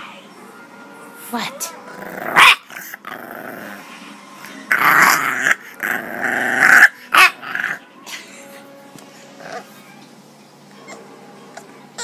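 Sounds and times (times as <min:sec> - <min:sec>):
puppy growling and grumbling: 0:01.9 - 0:04.0, 0:04.6 - 0:07.8, 0:09.3 - 0:09.9.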